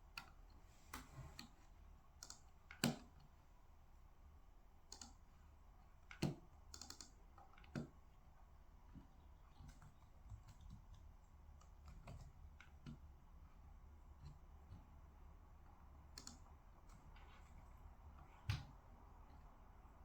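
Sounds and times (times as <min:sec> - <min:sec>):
faint low hum: 0:00.0 - 0:20.0
computer keyboard keystrokes: 0:02.2 - 0:03.3, 0:04.9 - 0:05.2, 0:06.0 - 0:08.0, 0:09.6 - 0:13.0, 0:16.1 - 0:17.4.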